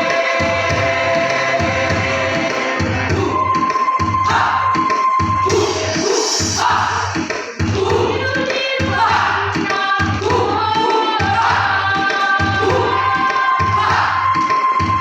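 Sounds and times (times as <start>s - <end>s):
choir singing: 0.0s - 4.8s
instrumental accompaniment: 0.0s - 15.0s
low pulsing beat: 0.0s - 15.0s.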